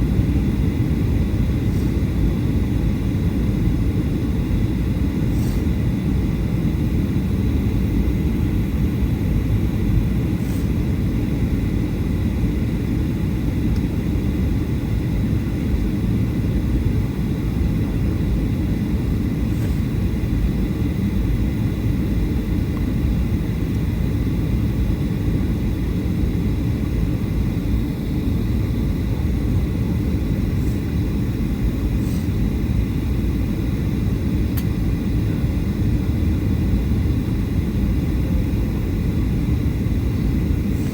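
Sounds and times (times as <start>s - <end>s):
aircraft cabin engine rumble: 0.0s - 40.9s
faint high whine: 0.0s - 40.9s.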